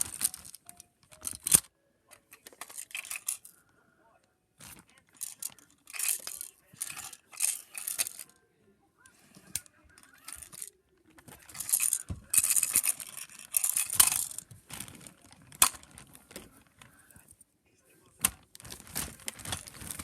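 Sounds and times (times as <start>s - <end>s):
toys rustling and clattering: 0.0s - 3.7s, 4.6s - 8.4s, 9.1s - 17.4s, 18.1s - 20.0s.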